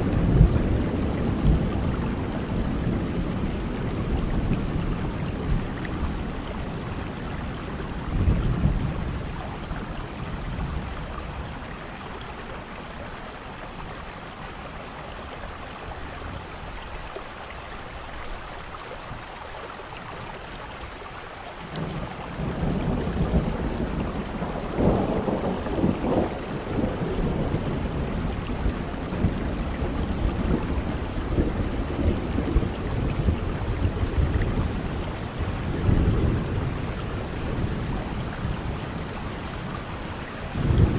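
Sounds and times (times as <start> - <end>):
rolling thunder: 0.0 - 11.6, 21.7 - 40.9
steady rain falling: 0.0 - 40.9.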